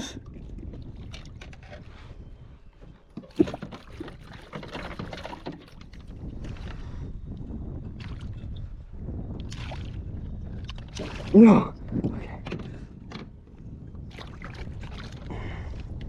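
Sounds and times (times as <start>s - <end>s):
water splashing against kayak: 3.1s - 7.1s, 9.4s - 13.0s, 14.0s - 16.0s.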